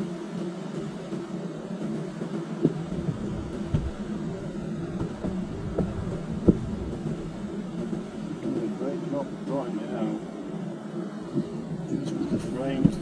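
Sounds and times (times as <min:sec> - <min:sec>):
honey bees buzzing: 0:00.0 - 0:13.0
dull knocks: 0:02.6 - 0:08.6.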